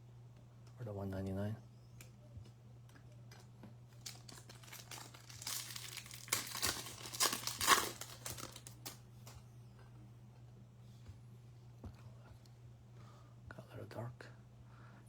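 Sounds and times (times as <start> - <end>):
wrapper crinkling and tearing: 4.0 - 9.0.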